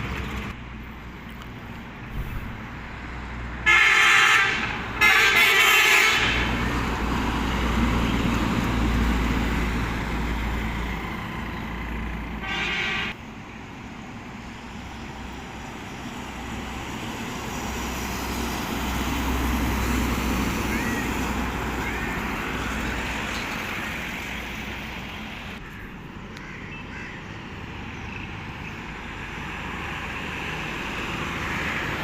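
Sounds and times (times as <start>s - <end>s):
engine rumble: 0.0s - 3.7s, 6.1s - 32.0s
truck horn honking: 3.6s - 6.6s, 12.4s - 13.2s.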